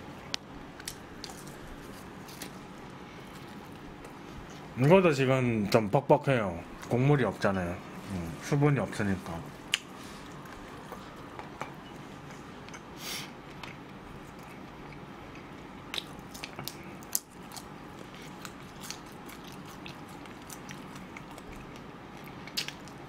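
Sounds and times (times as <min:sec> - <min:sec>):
person chewing food: 0:00.2 - 0:04.8, 0:09.6 - 0:23.0
background hiss: 0:12.9 - 0:13.4.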